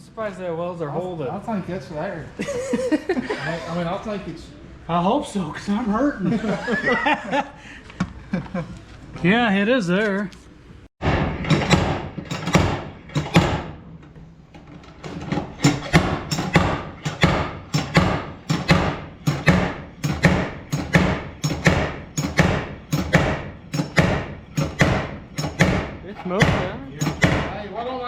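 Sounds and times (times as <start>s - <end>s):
slide hammer metal strikes: 11.0s - 13.8s, 15.2s - 27.5s.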